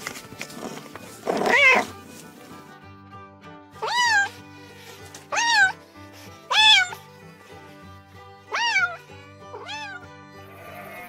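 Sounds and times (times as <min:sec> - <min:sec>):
background music: 0:00.0 - 0:11.0
cat meowing: 0:01.3 - 0:02.0, 0:03.8 - 0:04.4, 0:05.3 - 0:05.8, 0:06.5 - 0:07.0, 0:08.5 - 0:11.0.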